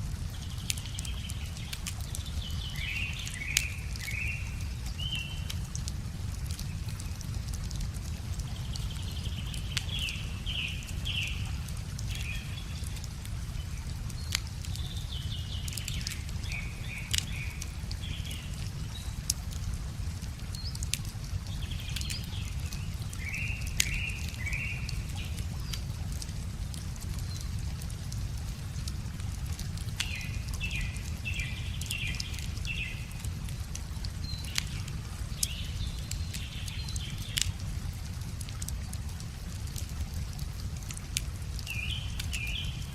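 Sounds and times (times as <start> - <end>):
river water running: 0.0 - 42.9
wood fire crackling and popping: 0.0 - 42.9
songbirds chirping: 0.1 - 39.0, 41.4 - 42.9.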